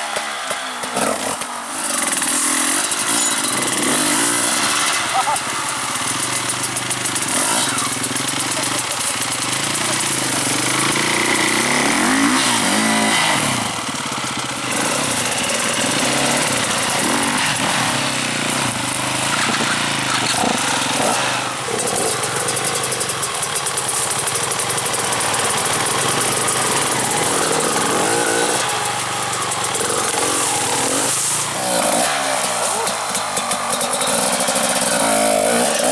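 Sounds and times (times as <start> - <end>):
dirt bike engines revving: 0.0 - 35.9.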